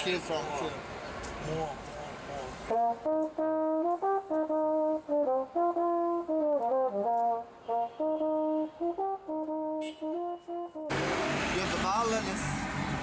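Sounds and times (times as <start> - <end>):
brass horn melody: 2.7 - 12.2.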